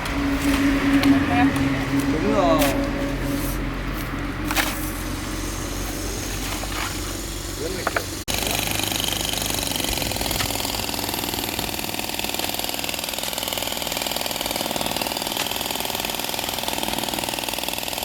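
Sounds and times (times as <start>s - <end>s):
small engine rattling: 4.2s - 18.0s.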